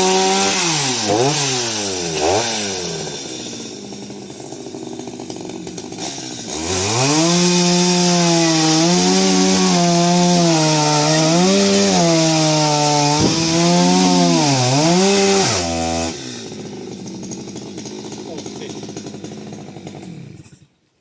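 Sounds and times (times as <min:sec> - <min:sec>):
chainsaw cutting wood: 0:00.0 - 0:20.8.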